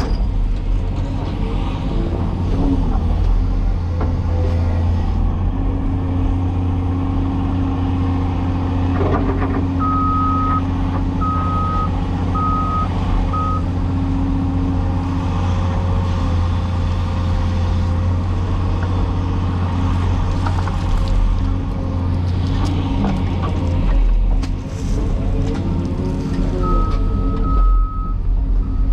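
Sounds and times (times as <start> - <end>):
excavator diesel engine running: 0.0 - 28.9
backup alarm beeping: 26.6 - 28.9.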